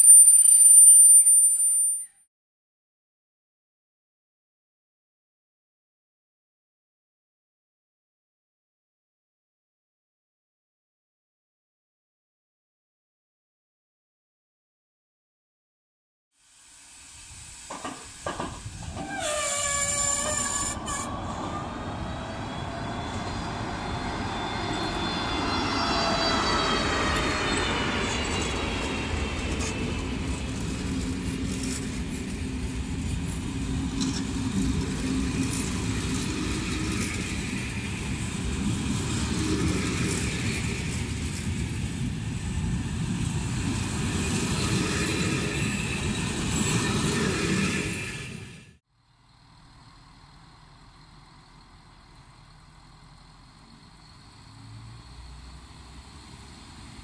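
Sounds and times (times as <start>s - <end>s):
wheels rumbling on rail: 16.9s - 57.0s
locomotive whine: 17.3s - 57.0s.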